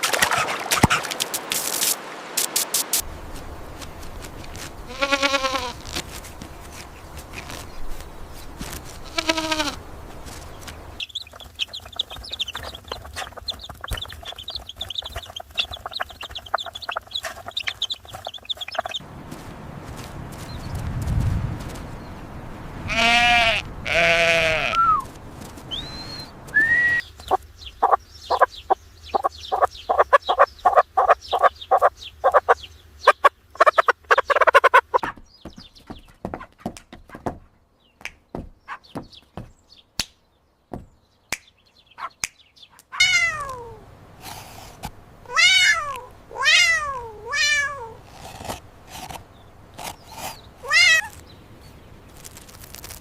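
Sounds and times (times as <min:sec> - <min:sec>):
animal bleat: 0:04.9 - 0:06.0, 0:09.0 - 0:09.8, 0:22.9 - 0:25.0
cat meowing: 0:43.0 - 0:43.8, 0:45.3 - 0:48.0, 0:50.6 - 0:51.2
quick repeated short animal calls: 0:49.8 - 0:51.2.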